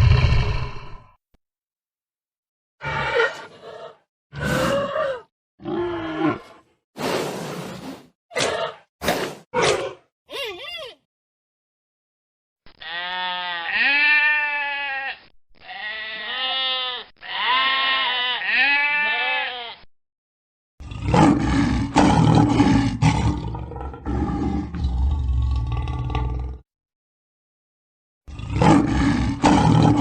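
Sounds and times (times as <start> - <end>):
low pulsing roar: 0.0 - 1.0.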